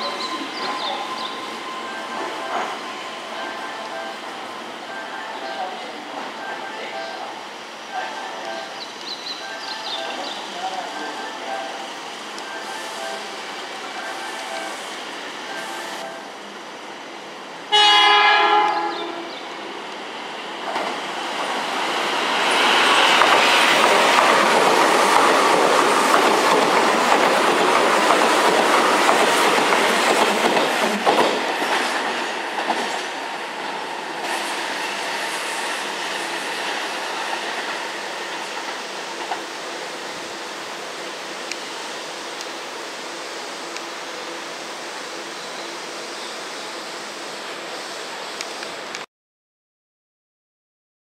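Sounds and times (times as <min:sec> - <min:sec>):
train horn blast: 0:17.7 - 0:19.5.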